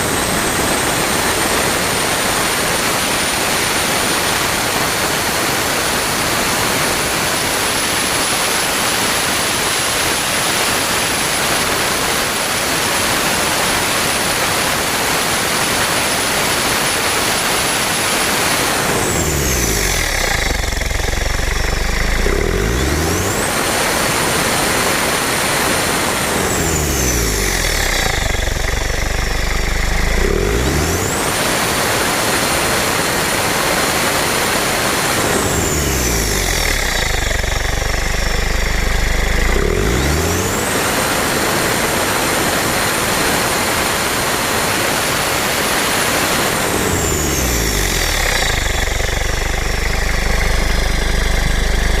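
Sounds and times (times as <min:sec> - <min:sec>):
turbo whine: 0:14.3 - 0:42.4, 0:45.6 - 0:52.0
diesel engine revving: 0:18.2 - 0:44.5, 0:45.8 - 0:52.0.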